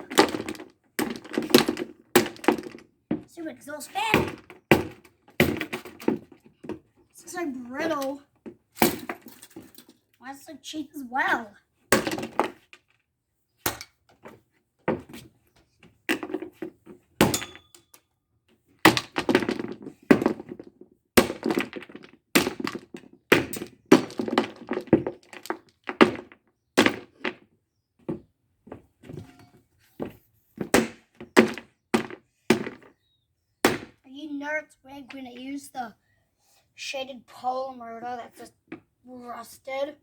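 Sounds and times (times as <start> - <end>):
blows smashing plastic: 0.0 - 2.9, 18.8 - 27.4
plastic cracking and breaking: 0.0 - 3.0.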